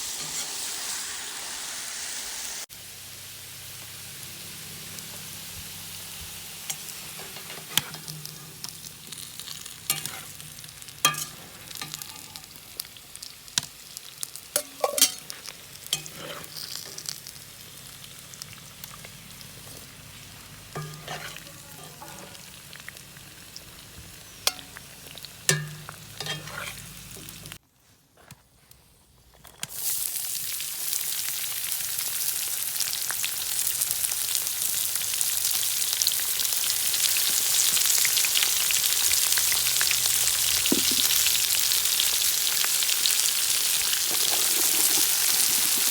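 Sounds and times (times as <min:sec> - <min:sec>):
food sizzling in hot oil: 0:00.0 - 0:27.6, 0:29.7 - 0:45.9
utensil scraping against pot: 0:06.7 - 0:08.7, 0:09.9 - 0:12.5, 0:14.6 - 0:17.2, 0:20.7 - 0:22.5, 0:25.5 - 0:27.5, 0:44.0 - 0:45.9.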